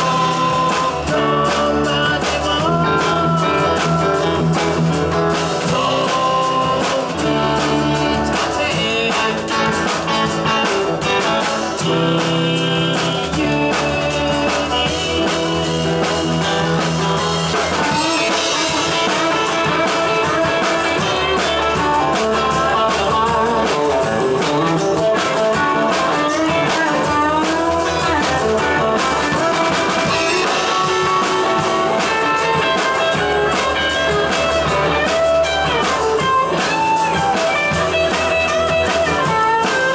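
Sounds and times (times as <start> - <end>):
electric guitar bending notes: 0.0 - 39.9
rock band playing blues-rock: 0.0 - 39.9.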